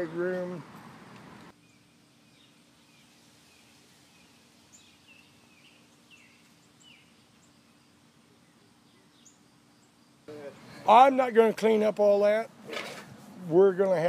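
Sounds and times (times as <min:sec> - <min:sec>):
bird chirping: 0:00.0 - 0:11.1
faint steady hum: 0:01.1 - 0:14.0.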